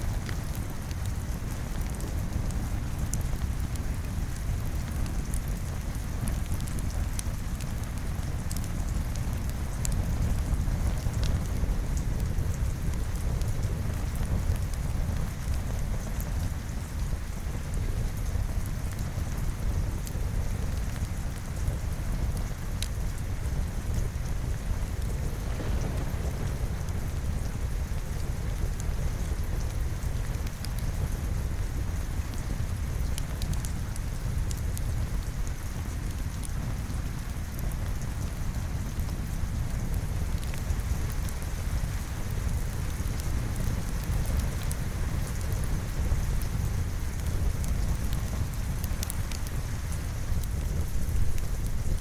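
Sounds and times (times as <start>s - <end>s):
steady rain: 0.0s - 52.0s
small sharp crackles: 20.0s - 31.1s, 40.3s - 52.0s
faint sharp crackles: 23.9s - 29.8s
deep low rumble: 24.3s - 29.4s.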